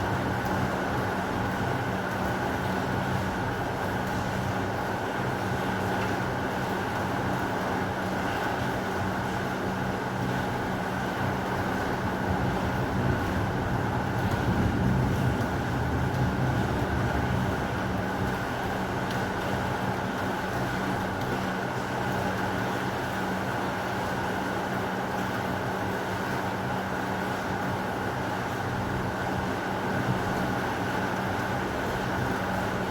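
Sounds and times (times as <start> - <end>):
heavy rain falling: 11.2 - 23.1
low rumble of thunder: 12.3 - 18.4.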